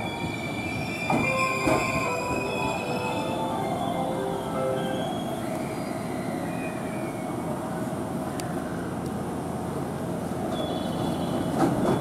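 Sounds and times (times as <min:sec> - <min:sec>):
train brake squeal: 0:00.0 - 0:07.8, 0:10.5 - 0:12.0
stopped train noise: 0:00.0 - 0:12.0.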